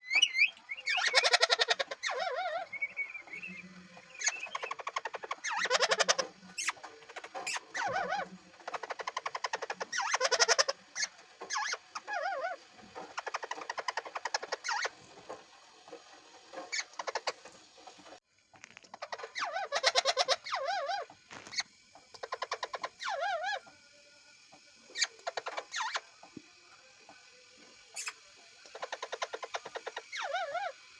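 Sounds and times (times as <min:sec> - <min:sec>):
parrot screeching and chattering: 0:00.0 - 0:03.0, 0:04.0 - 0:15.0, 0:16.5 - 0:17.5, 0:18.9 - 0:23.6, 0:24.9 - 0:26.1, 0:28.0 - 0:30.9.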